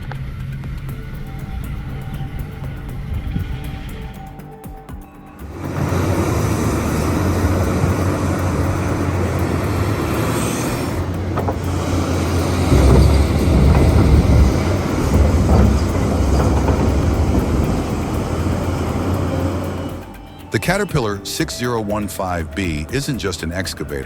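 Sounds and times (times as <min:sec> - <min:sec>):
heavy diesel machinery rumbling: 0:05.3 - 0:24.0.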